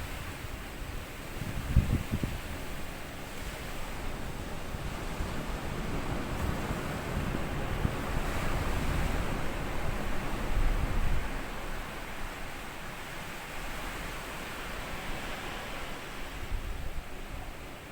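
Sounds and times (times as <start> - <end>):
wind buffeting microphone: 0.0 - 12.8
sea waves washing over sand: 0.2 - 17.9.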